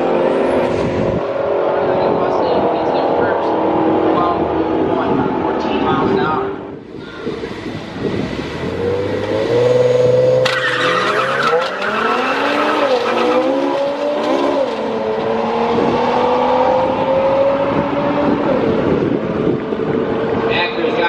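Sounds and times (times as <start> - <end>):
race car engine accelerating: 7.3 - 20.7.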